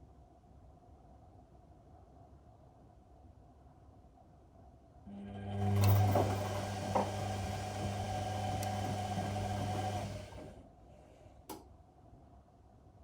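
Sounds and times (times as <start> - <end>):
washing machine motor humming: 5.1 - 10.6.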